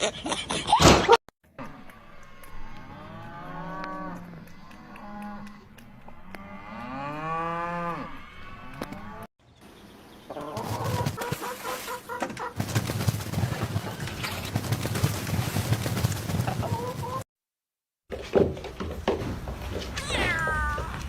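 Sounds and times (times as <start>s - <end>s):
quick choppy calls: 10.6s - 17.2s.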